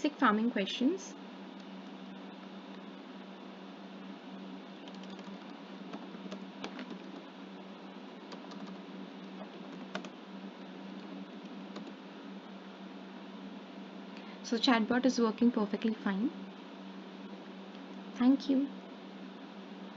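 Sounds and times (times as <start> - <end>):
steady low hum: 0.0 - 19.9
computer keyboard typing: 4.8 - 7.2, 8.3 - 8.8, 9.6 - 10.1, 11.7 - 12.0.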